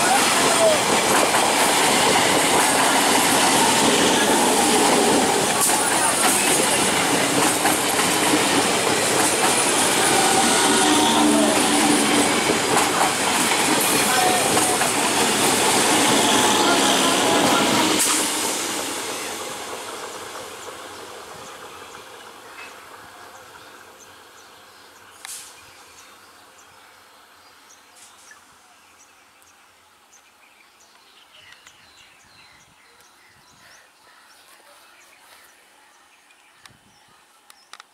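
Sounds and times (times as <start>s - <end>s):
train rail noise: 0.0s - 28.4s.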